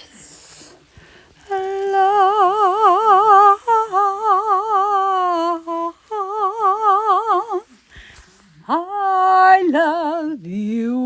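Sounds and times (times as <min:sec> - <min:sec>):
woman humming with vibrato: 0:01.4 - 0:07.6.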